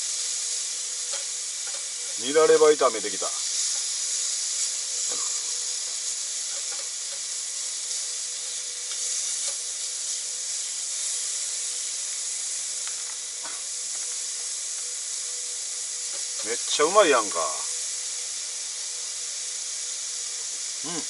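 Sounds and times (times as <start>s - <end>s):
food sizzling in a hot pan: 0.0s - 21.0s
chopsticks tapping a pan: 1.1s - 1.9s, 6.5s - 7.3s.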